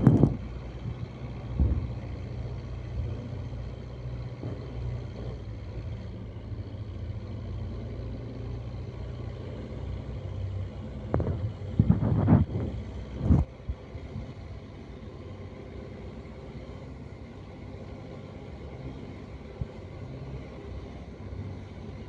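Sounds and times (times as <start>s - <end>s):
tractor engine running: 0.0s - 22.0s
brief thump: 1.6s - 1.9s.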